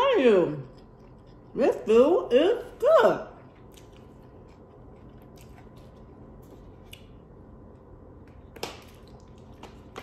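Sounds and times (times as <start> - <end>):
person chewing: 0.6 - 1.6, 3.4 - 10.0.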